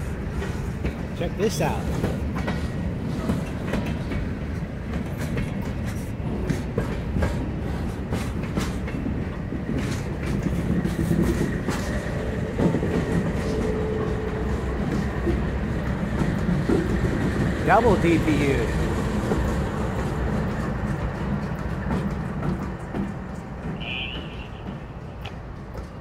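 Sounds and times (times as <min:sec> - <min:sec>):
freight cars clicking over rail joints: 0:00.3 - 0:26.0
diesel locomotive engine tone: 0:11.7 - 0:22.6, 0:23.5 - 0:25.6.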